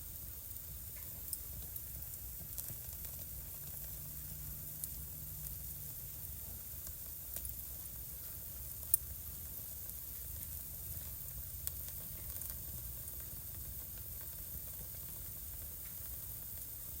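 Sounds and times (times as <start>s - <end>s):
low rumble of flames: 0.0s - 17.0s
wood fire crackling: 0.0s - 17.0s.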